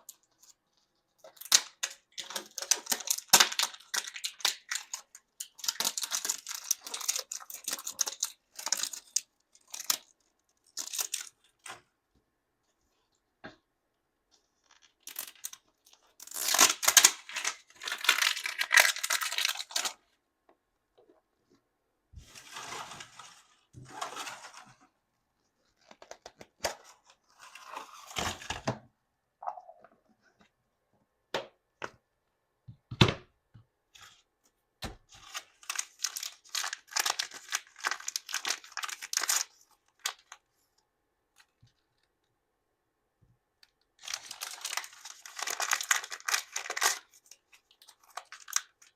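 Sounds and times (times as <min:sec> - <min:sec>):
plastic wrappers tearing and crinkling: 0:00.0 - 0:11.8, 0:14.6 - 0:20.1, 0:35.1 - 0:40.4, 0:44.0 - 0:48.9.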